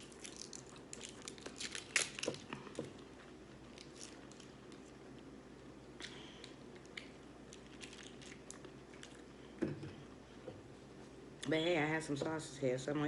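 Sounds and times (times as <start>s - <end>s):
crisp food crunching: 0.0s - 5.2s, 6.0s - 9.3s
quiet chewing: 0.1s - 11.5s.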